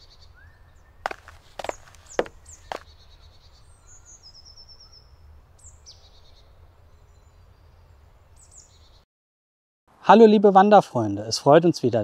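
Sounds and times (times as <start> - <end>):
faint birdsong: 0.0 - 9.0.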